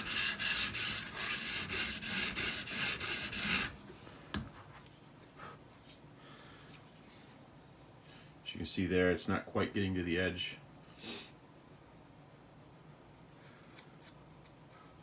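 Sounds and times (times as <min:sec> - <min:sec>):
sharpening stone rasping on knife: 0:00.0 - 0:03.8.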